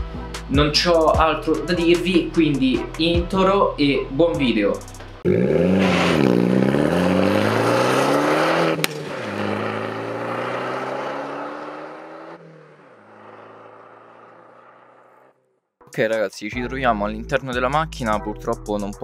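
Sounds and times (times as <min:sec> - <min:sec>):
car engine revving: 0:05.2 - 0:15.4.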